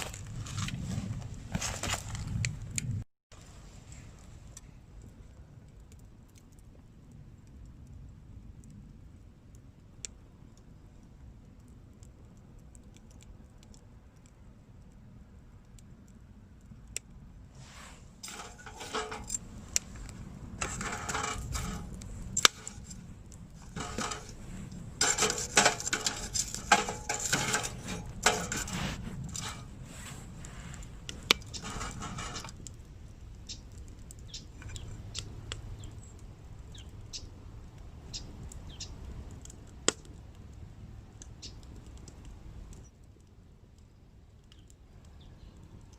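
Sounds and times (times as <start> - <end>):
small hard objects clinking: 18.2 - 29.8, 31.1 - 32.6.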